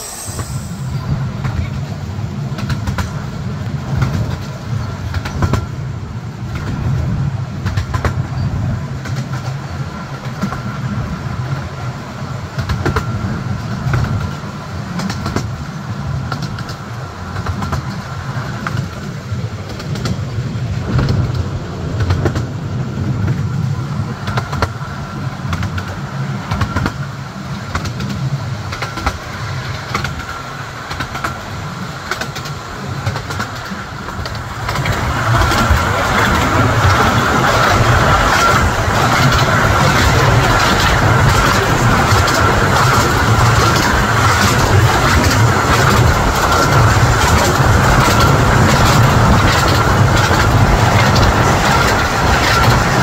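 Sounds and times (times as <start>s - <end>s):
railway carriage rumble: 0.0s - 53.0s
wheels clicking over rails: 12.5s - 53.0s.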